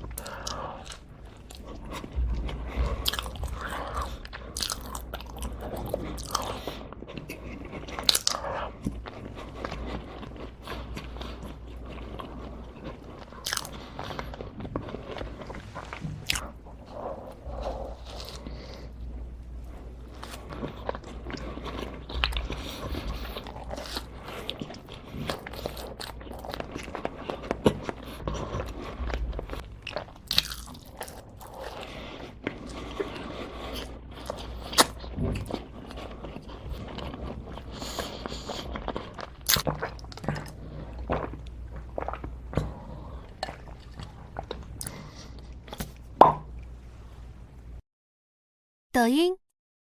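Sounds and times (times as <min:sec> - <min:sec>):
person chewing crunchy food: 0:00.0 - 0:46.6.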